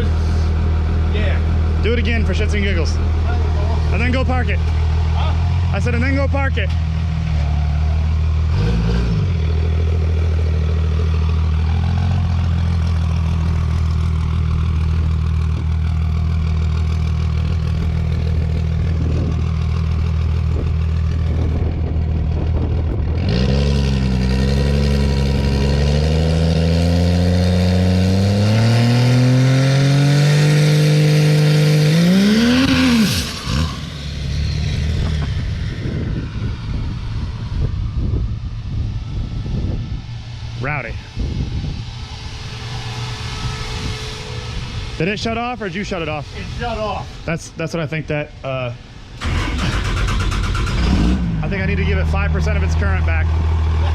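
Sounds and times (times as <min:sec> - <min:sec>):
diesel truck engine revving: 0:00.0 - 0:53.9.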